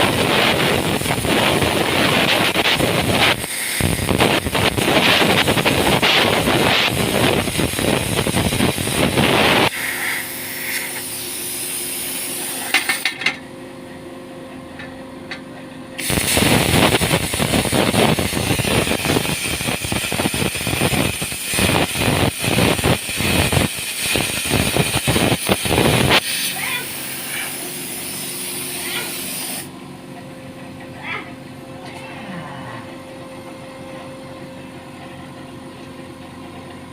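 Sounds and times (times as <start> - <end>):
grinder motor spinning free: 0.0 - 13.0, 16.0 - 29.7
angle grinder cutting steel: 16.0 - 29.7.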